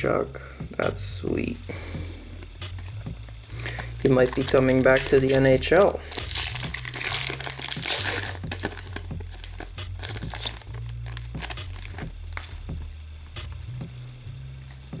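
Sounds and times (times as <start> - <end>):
cards clicking and sliding: 2.7 - 12.6
foil wrapper crinkling: 2.8 - 12.7.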